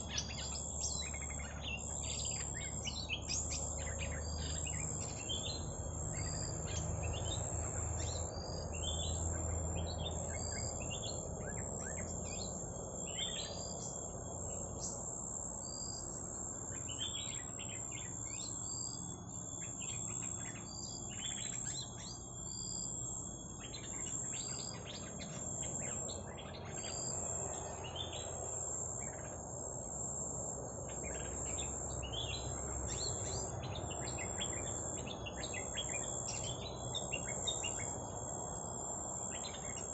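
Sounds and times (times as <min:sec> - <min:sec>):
high-pitched whine: 0:00.0 - 0:39.9
small birds chirping: 0:00.0 - 0:39.9.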